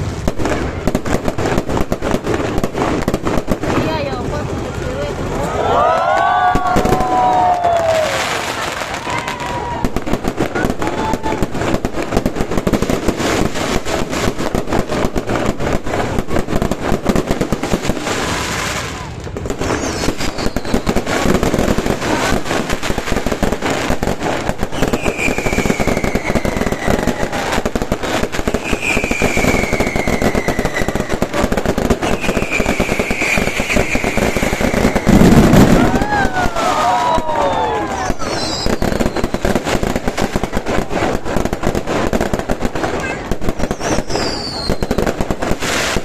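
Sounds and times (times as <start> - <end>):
fireworks crackling and popping: 0.0 - 46.0
falling firework whistles: 6.0 - 11.5, 18.2 - 22.4, 24.4 - 40.0, 43.6 - 46.0.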